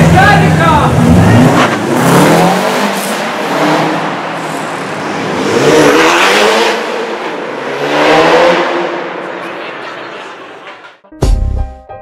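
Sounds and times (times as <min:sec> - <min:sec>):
car engine accelerating hard: 0:00.0 - 0:09.4.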